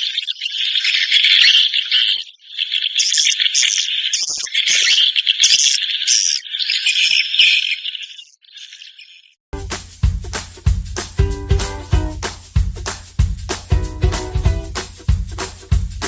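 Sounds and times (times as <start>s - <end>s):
swiftlets chirping and twittering: 0.0s - 9.3s.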